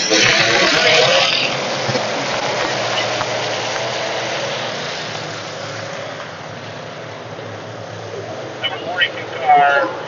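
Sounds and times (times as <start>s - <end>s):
race car engines roaring: 0.0s - 10.0s.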